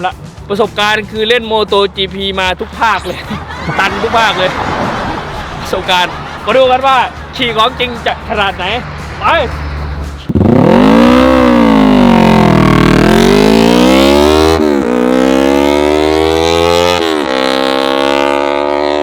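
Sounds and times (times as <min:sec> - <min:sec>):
motorcycle engine revving: 0:09.0 - 0:19.0.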